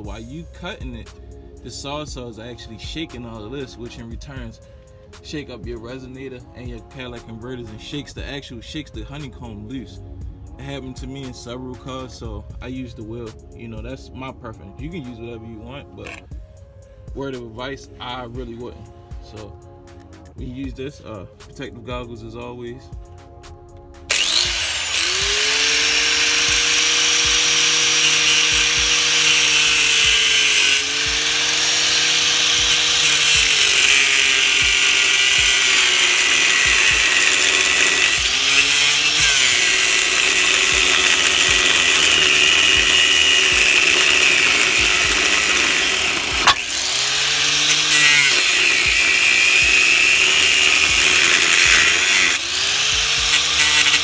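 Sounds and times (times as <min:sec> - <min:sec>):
tool motor whine: 0:16.0 - 0:16.2, 0:24.1 - 0:54.0
cutoff wheel grinding metal: 0:16.0 - 0:16.3, 0:24.1 - 0:54.0.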